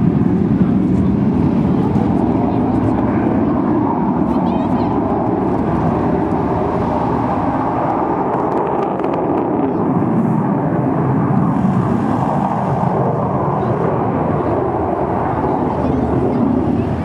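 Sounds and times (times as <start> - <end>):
jet aircraft engine noise: 0.0 - 17.0.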